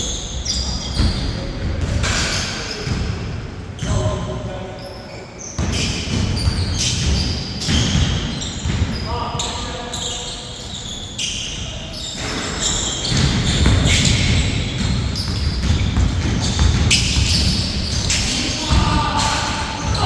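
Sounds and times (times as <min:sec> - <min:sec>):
basketball bouncing on court: 0:05.6 - 0:09.0, 0:12.2 - 0:20.0.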